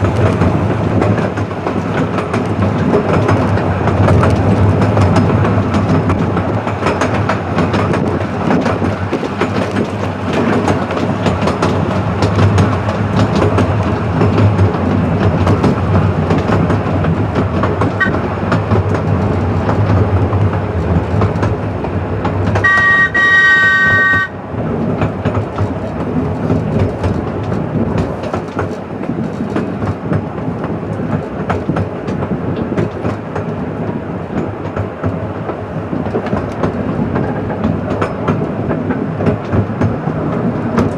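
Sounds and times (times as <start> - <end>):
train wheels clicking over rail joints: 0.0 - 40.9
multi-tone train whistle: 18.0 - 18.2, 22.6 - 24.4.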